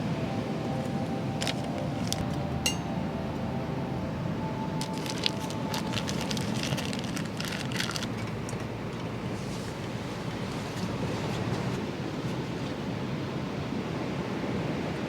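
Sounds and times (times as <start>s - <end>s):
low background rumble: 0.0s - 12.1s.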